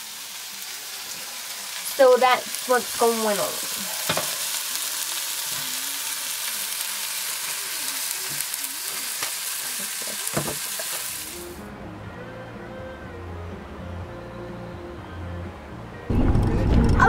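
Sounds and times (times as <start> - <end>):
burger patty sizzling in oil: 0.0 - 11.6.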